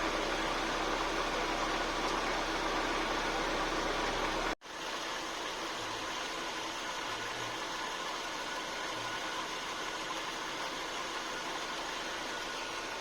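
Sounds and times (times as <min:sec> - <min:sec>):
car engine idling: 0:00.0 - 0:04.6.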